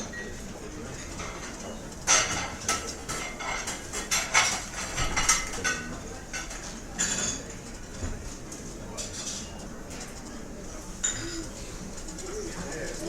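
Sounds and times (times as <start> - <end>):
dining room hum: 0.0 - 13.0
cutlery and dishes clattering: 1.0 - 7.6, 9.0 - 10.2.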